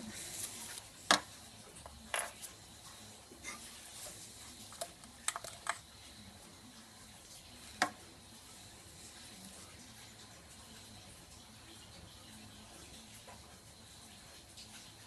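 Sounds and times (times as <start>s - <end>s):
small parts and tools clicking: 4.7s - 5.9s.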